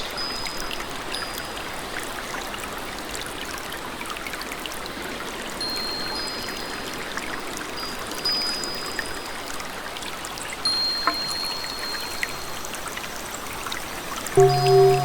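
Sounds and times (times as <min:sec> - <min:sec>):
rain and trickling water: 0:00.0 - 0:15.0
water drips: 0:10.3 - 0:15.0
high whistled tones: 0:14.4 - 0:15.0.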